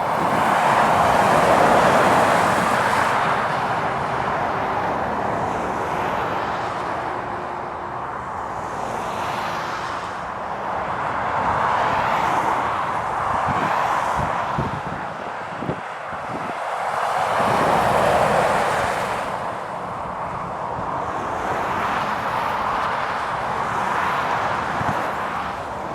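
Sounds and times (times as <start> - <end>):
wind buffeting microphone: 0.0 - 5.8, 12.5 - 25.9
trucks passing on wet road: 0.0 - 25.9.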